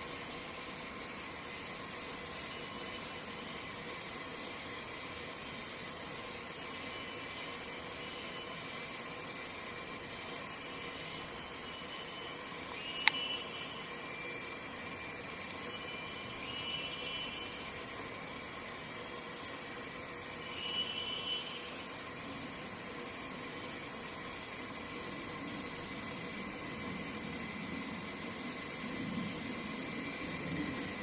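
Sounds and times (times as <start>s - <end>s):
steady outdoor hiss: 0.0s - 31.0s
faint high-pitched calls: 11.6s - 14.5s, 15.5s - 17.8s, 20.4s - 22.2s
sharp click: 13.0s - 13.2s.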